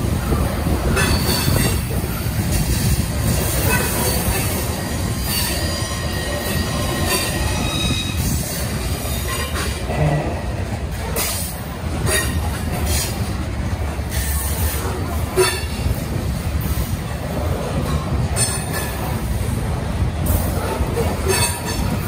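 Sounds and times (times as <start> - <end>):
train wheels rumbling on rail: 0.0 - 22.0
high wheel squeal: 3.4 - 9.7.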